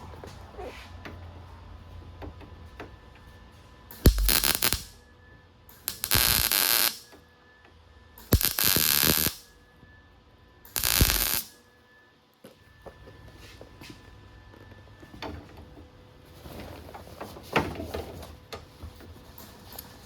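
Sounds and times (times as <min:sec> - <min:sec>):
welding arc crackling: 0:04.0 - 0:05.0, 0:05.8 - 0:07.1, 0:08.2 - 0:09.5, 0:10.7 - 0:11.6.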